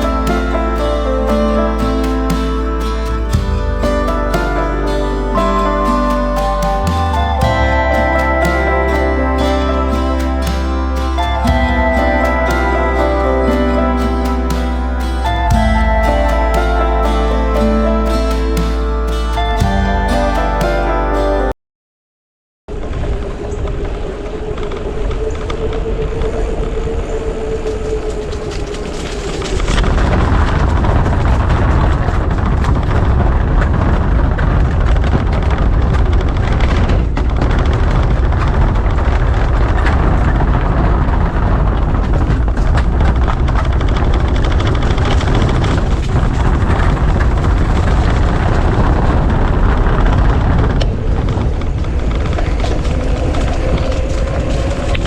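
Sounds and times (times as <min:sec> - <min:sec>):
steady hum: 0:00.0 - 0:21.5
wind rushing over microphone: 0:22.7 - 0:55.0.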